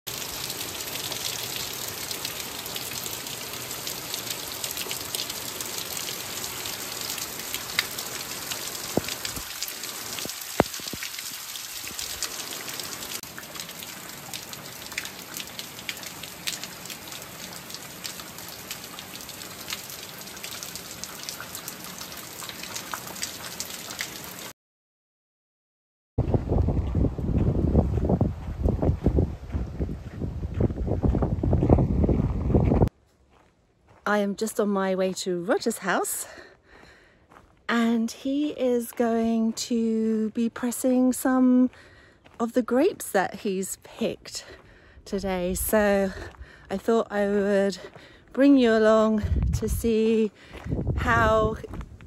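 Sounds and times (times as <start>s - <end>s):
raindrops ticking: 0.1s - 24.5s
steady rain falling: 0.1s - 24.5s.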